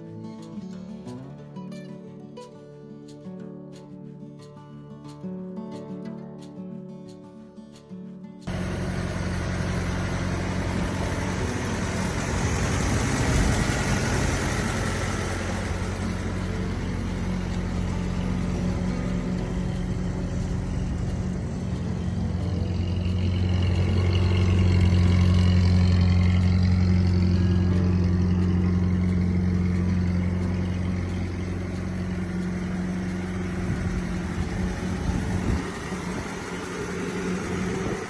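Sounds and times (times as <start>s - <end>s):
car engine humming: 8.5s - 38.0s.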